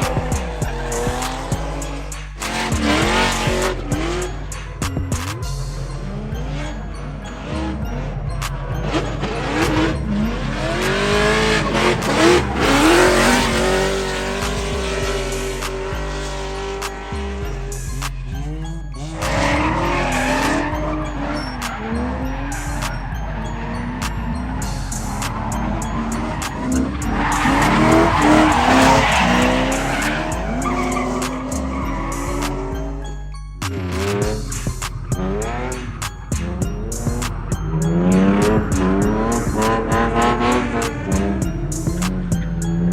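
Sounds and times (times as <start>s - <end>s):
background music with bass line: 0.0s - 42.9s
car engine revving: 0.0s - 42.9s
tyre squeal: 19.1s - 32.8s.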